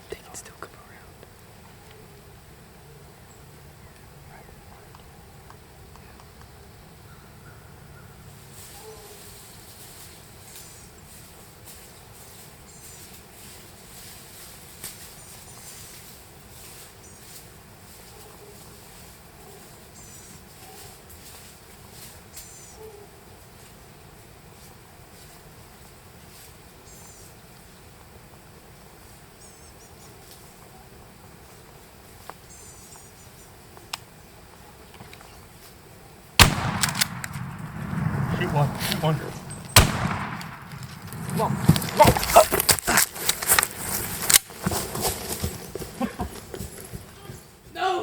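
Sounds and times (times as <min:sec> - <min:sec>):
steady low hiss: 0:00.0 - 0:46.5
small sharp clicks: 0:36.4 - 0:37.7
sharp tick: 0:36.4 - 0:38.2
faint low rumble: 0:36.4 - 0:42.4.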